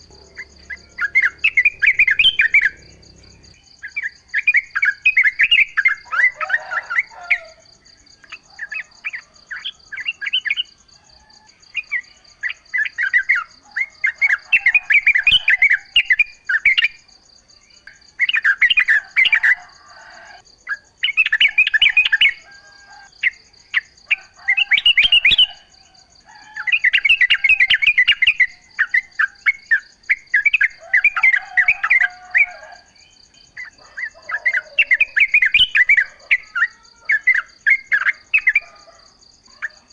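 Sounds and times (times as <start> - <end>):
faint high-pitched tone: 0.0 - 3.6
bulbul singing: 0.0 - 6.8.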